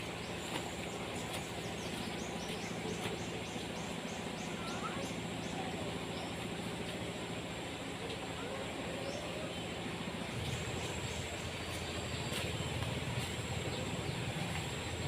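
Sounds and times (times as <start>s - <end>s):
constant rustling noise: 0.0s - 4.0s, 10.1s - 15.0s.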